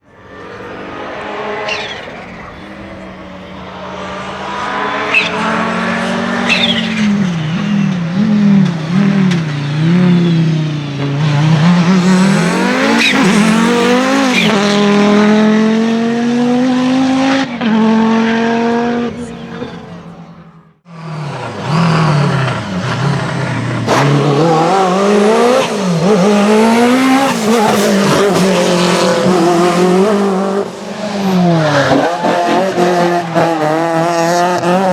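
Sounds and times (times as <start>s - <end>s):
rally car engines revving: 0.0s - 34.9s.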